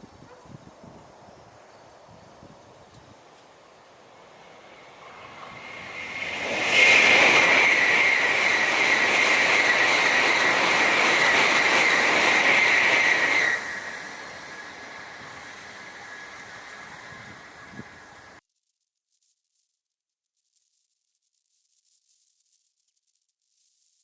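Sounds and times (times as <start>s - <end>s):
high-speed train passing: 0.0s - 18.4s.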